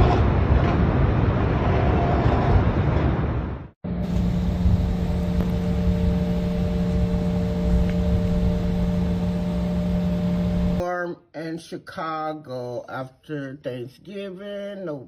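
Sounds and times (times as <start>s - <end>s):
road and wind noise: 0.0s - 10.8s
vehicle engine drone: 3.8s - 10.8s.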